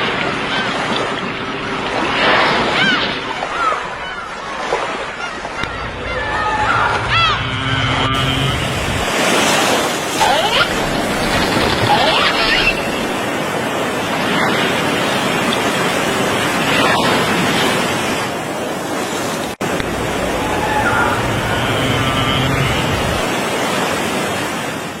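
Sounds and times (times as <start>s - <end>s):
sea water rushing: 0.0s - 25.0s
wind: 0.0s - 25.0s.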